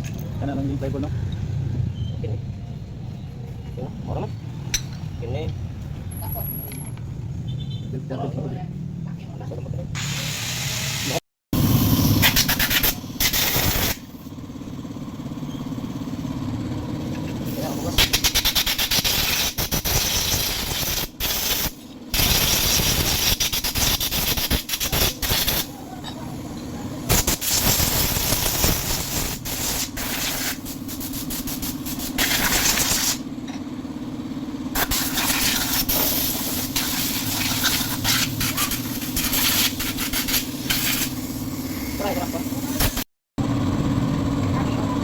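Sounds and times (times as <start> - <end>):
spray hissing: 10.0 - 14.1, 27.1 - 33.2, 34.8 - 43.0.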